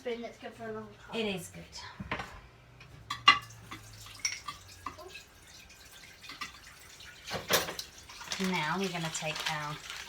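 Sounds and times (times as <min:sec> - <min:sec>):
spoon clinking: 0:03.1 - 0:04.7
water dripping: 0:03.5 - 0:10.0.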